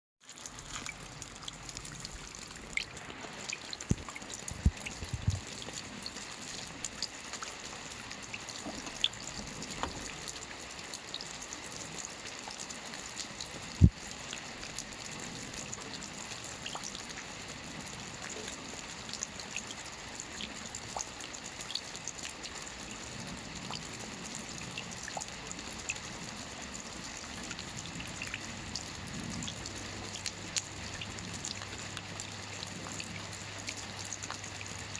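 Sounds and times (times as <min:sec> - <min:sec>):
soft rain on a roof: 0:00.2 - 0:34.9.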